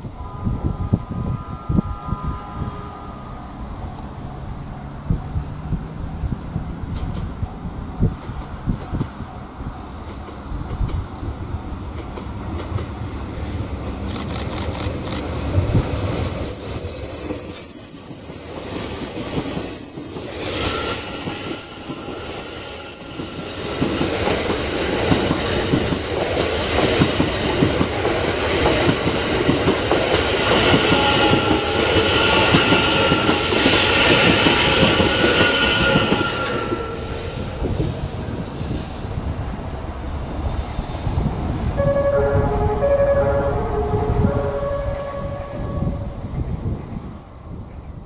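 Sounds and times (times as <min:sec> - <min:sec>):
high whine: 0:00.0 - 0:06.4, 0:41.7 - 0:46.6
train wheels clattering over rails: 0:11.8 - 0:16.2, 0:23.1 - 0:39.4.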